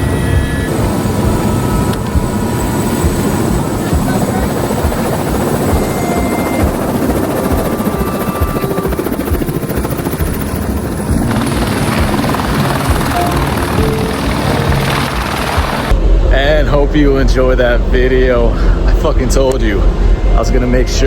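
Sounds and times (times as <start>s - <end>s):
helicopter rotor and engine: 0.0s - 16.0s.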